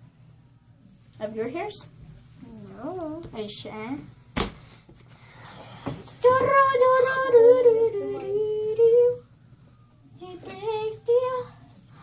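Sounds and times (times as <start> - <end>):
girl singing long held notes: 6.0 - 9.3, 10.0 - 12.0.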